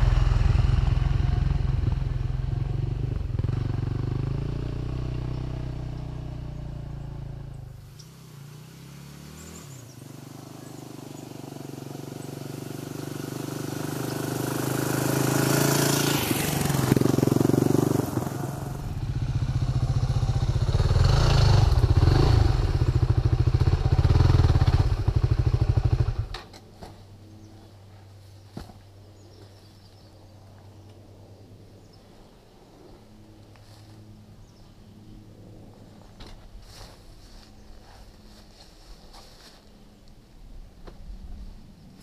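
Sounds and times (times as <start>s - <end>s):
dirt bike engine: 0.0s - 27.0s.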